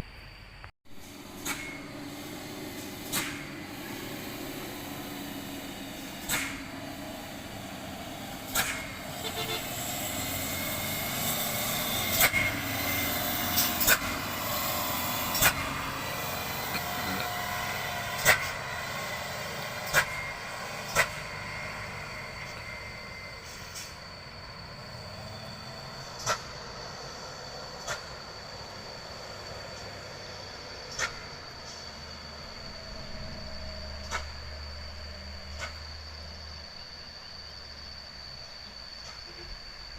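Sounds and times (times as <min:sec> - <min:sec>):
truck engine noise: 0:00.9 - 0:39.9
faint brake squeal: 0:08.5 - 0:14.1, 0:19.8 - 0:39.9.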